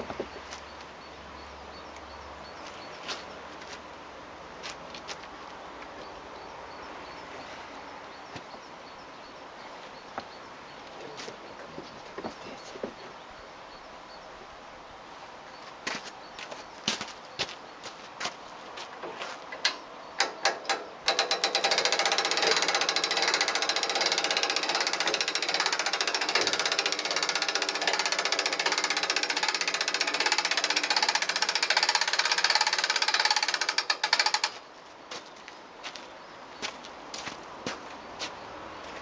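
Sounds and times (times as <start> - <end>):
sharp clicks and knocks: 19.0 - 34.6
rapid mechanical rattling: 19.6 - 34.6.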